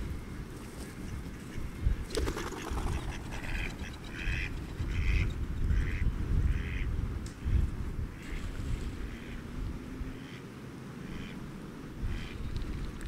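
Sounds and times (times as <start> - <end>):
wind rumble on microphone: 0.0 - 10.3, 11.2 - 13.0
duck-like calls: 1.0 - 6.9, 11.0 - 11.4.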